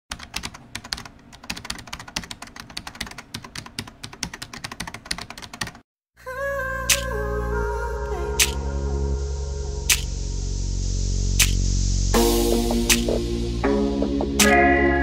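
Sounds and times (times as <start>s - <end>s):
music: 6.9s - 15.0s
rapid sharp clicks: 9.9s - 10.1s, 11.4s - 11.6s.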